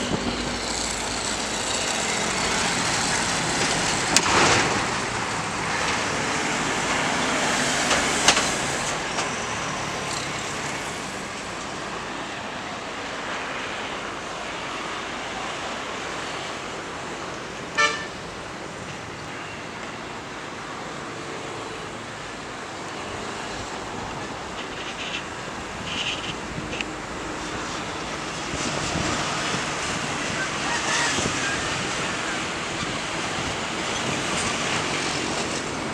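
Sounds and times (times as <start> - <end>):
road traffic passing: 0.0 - 35.9
short vehicle horn toot: 17.8 - 18.2.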